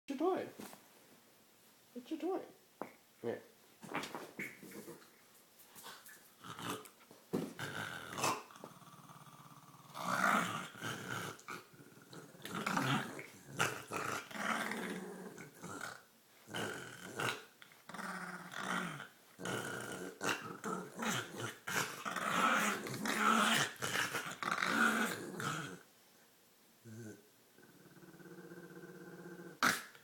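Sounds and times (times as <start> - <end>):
dog growling and snorting: 6.4 - 6.9, 7.5 - 25.8.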